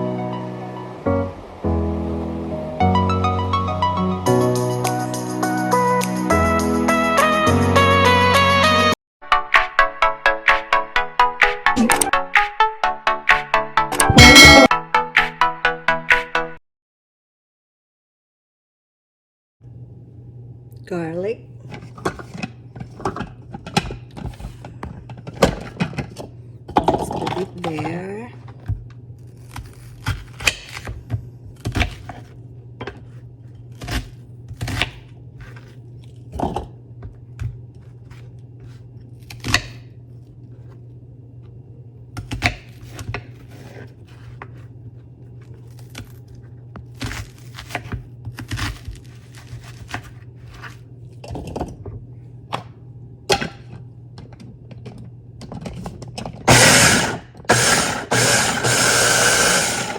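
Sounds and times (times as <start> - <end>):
utensils and dishes clattering: 25.0 - 28.2
kitchen appliance motor chopping: 56.5 - 59.9.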